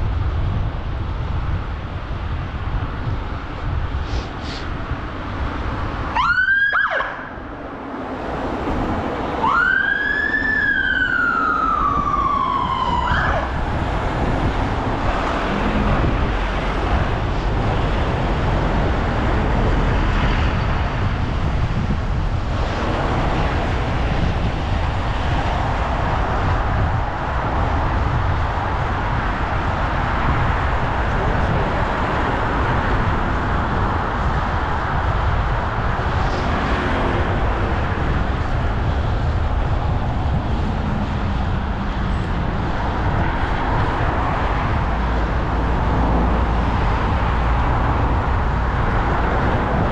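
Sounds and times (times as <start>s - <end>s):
wind and traffic rumble: 0.0s - 49.9s
emergency siren wailing: 6.1s - 7.5s, 9.3s - 14.6s.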